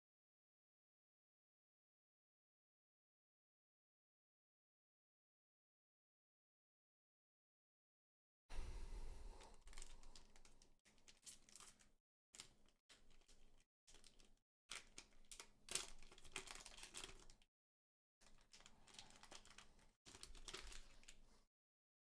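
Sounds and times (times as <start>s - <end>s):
trading cards rustling: 9.4s - 17.4s, 18.2s - 21.4s
foil wrapper crinkling and tearing: 9.4s - 17.5s, 18.2s - 21.2s.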